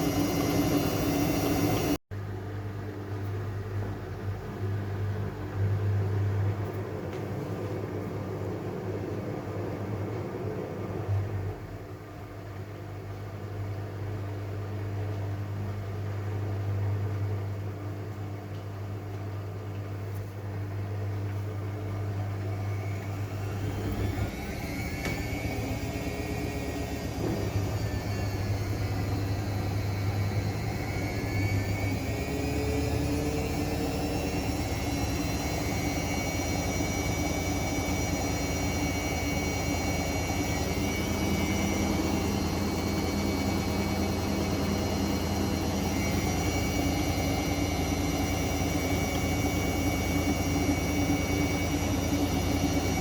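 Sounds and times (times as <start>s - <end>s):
motor whine rising in pitch: 0.0s - 2.0s, 22.1s - 53.0s
washing machine humming: 0.0s - 53.0s.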